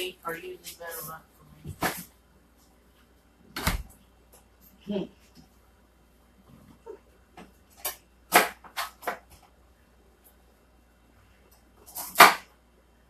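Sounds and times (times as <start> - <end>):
kitchen items knocking and rustling: 7.4 - 9.6.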